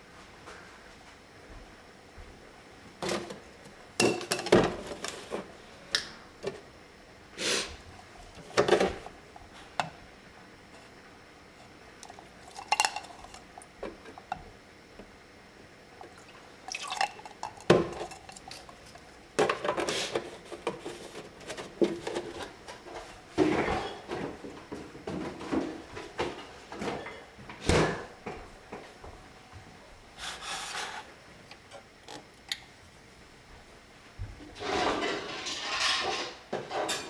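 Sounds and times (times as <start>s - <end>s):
utensils and dishes clinking: 3.0s - 5.4s, 12.0s - 14.4s, 16.1s - 22.5s, 34.6s - 37.0s.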